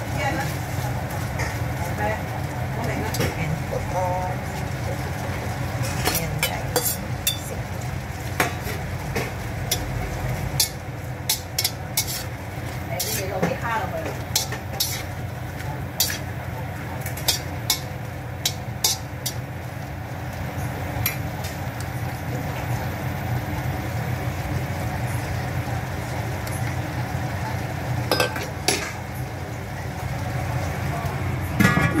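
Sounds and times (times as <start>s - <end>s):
shrimp sizzling in a pan: 0.0s - 31.7s
metal utensil clinking on pan: 5.9s - 7.6s, 8.4s - 12.3s, 12.9s - 15.1s, 16.0s - 16.3s, 17.0s - 19.4s, 28.1s - 28.9s.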